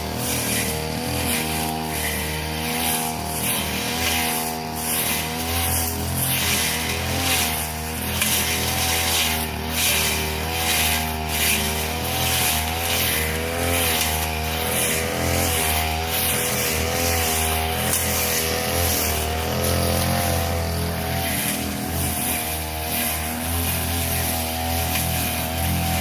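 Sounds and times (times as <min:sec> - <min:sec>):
blade swishing through grass: 0:00.0 - 0:26.0
brush cutter engine running: 0:00.0 - 0:26.0.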